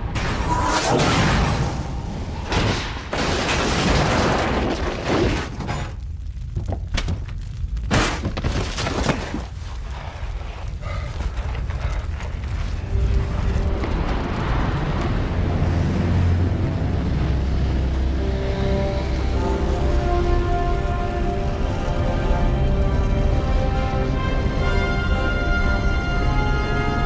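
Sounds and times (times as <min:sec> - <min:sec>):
debris crashes and thuds: 0:00.0 - 0:17.0
deep explosion rumble: 0:10.6 - 0:18.8.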